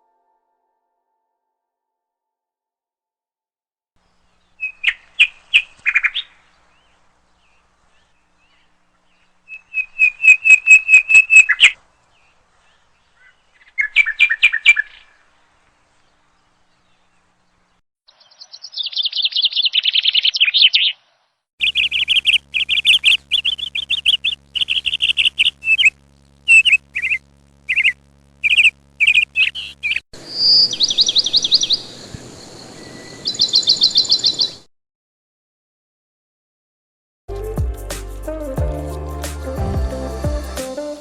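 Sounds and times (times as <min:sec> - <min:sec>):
small birds chirping in trills: 0:04.0 - 0:34.7.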